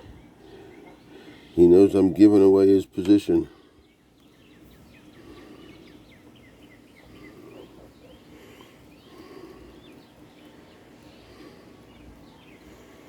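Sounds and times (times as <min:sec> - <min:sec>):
low steady background noise: 0:00.0 - 0:13.0
small birds chirping: 0:00.0 - 0:13.0.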